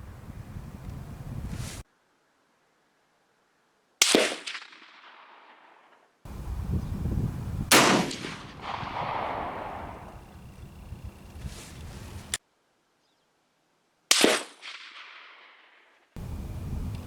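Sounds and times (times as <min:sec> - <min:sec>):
rifle shots with echo: 0:07.7 - 0:10.5.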